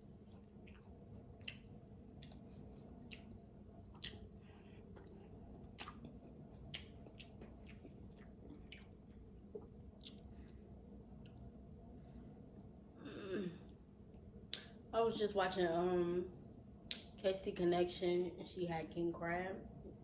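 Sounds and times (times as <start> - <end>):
soft wet chewing: 0.0 - 12.2, 13.5 - 14.9, 16.7 - 17.2.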